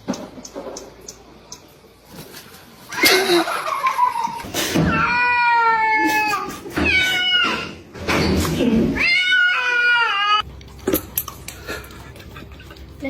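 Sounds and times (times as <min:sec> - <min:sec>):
cat meowing: 0:04.9 - 0:07.8, 0:09.0 - 0:10.4.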